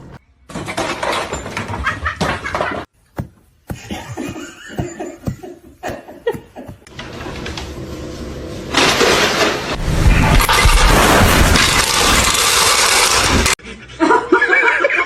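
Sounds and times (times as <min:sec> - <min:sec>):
person laughing: 0:03.7 - 0:06.9.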